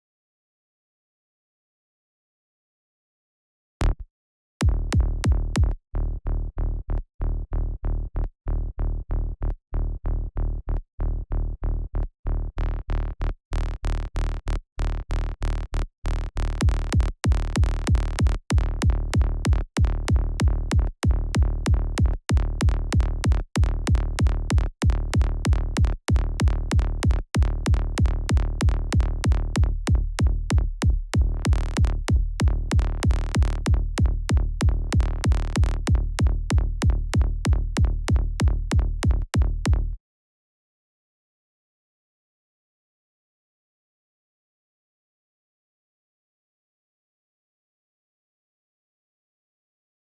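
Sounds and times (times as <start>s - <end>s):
synthesized kick drum: 4.6s - 5.8s, 16.6s - 40.0s
pulsing synth bass: 4.6s - 40.0s.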